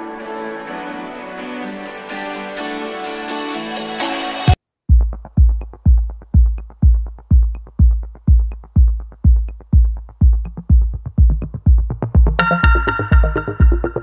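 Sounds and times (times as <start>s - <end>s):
drum machine kick beat: 4.8s - 14.0s.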